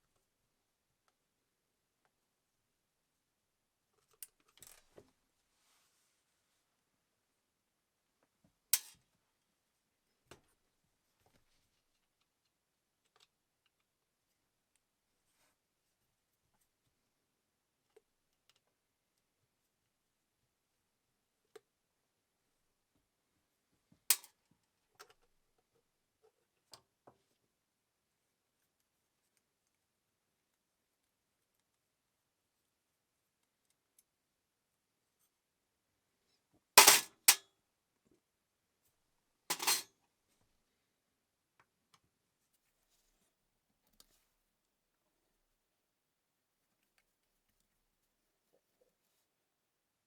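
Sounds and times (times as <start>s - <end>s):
small object clattering on hard surface: 39.5s - 39.8s
tools clicking and clacking: 39.5s - 39.8s.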